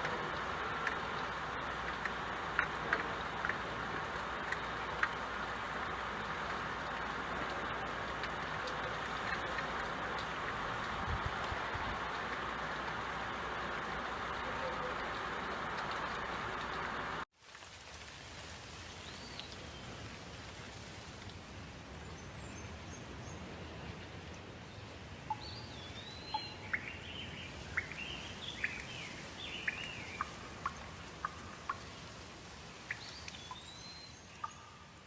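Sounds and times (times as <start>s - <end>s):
rain hiss: 0.0s - 35.0s
birds chirping and whistling: 32.9s - 34.7s.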